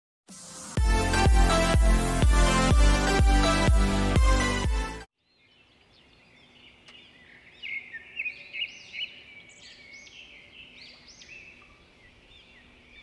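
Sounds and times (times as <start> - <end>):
songbirds chirping: 5.2 - 13.0.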